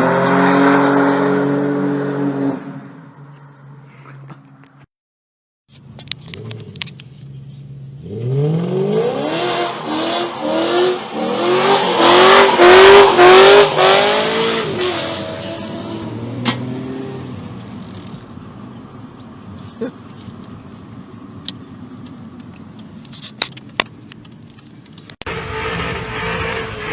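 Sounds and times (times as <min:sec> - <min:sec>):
car engine revving: 0:00.0 - 0:04.8, 0:08.0 - 0:17.6, 0:25.2 - 0:26.9.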